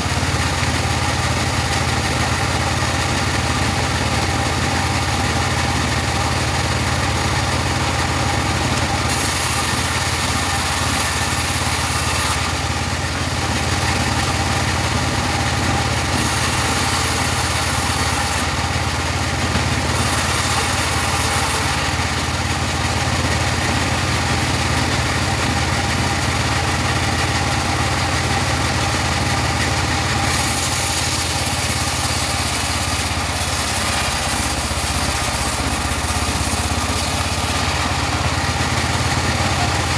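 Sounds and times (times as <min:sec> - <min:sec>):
bandsaw sawing wood hiss: 0:00.0 - 0:39.9.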